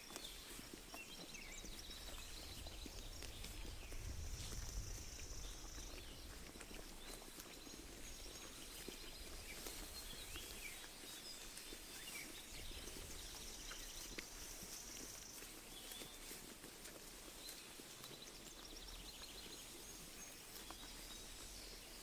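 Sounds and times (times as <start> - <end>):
birds chirping: 0.0 - 16.1
sheep chewing grass: 0.0 - 22.0.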